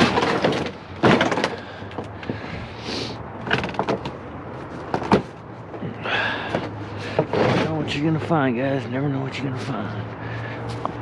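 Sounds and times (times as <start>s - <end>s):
metal knocks and clatters: 0.0s - 2.1s, 3.4s - 4.2s, 4.8s - 5.4s.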